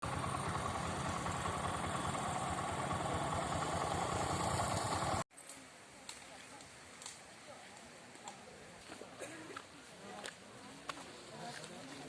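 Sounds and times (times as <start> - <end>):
vehicle engine throbbing: 0.0 - 5.2.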